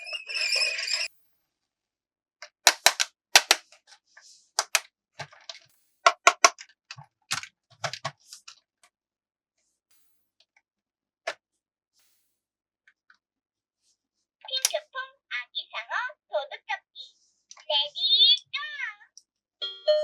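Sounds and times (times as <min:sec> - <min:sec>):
plastic toy parts clicking: 0:02.4 - 0:03.7, 0:04.6 - 0:08.6, 0:14.6 - 0:14.8.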